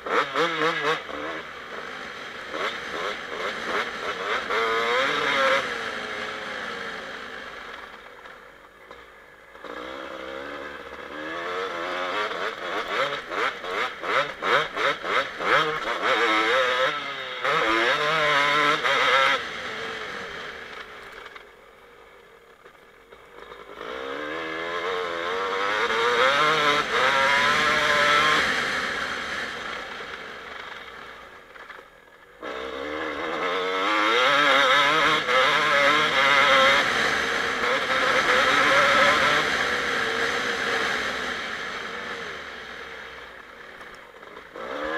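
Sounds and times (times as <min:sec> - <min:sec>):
dirt bike engine revving: 0:00.0 - 0:07.9, 0:09.5 - 0:21.3, 0:23.4 - 0:31.4, 0:32.4 - 0:44.9.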